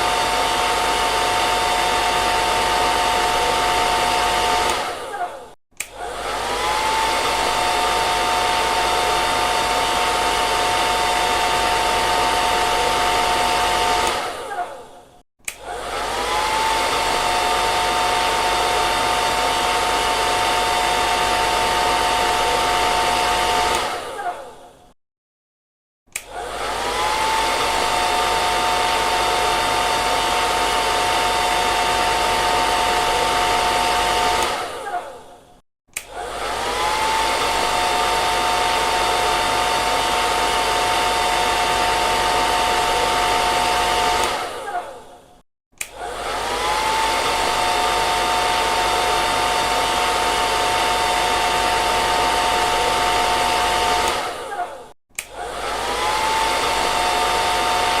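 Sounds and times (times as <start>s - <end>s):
hair dryer blowing: 0.0s - 24.8s, 26.1s - 58.0s.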